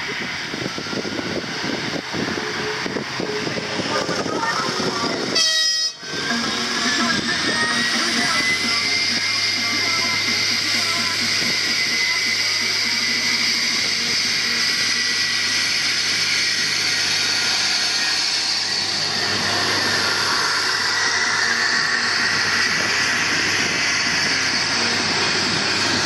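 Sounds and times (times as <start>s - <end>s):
wind noise on microphone: 0.0s - 14.8s, 19.1s - 26.0s
train passing at low speed: 0.0s - 26.0s.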